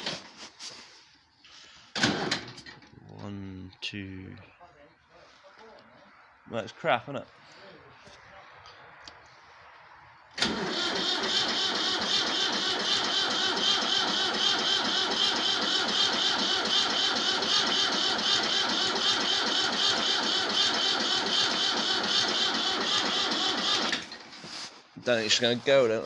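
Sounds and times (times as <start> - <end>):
tractor starter cranking engine: 1.9 - 2.9, 10.4 - 24.4.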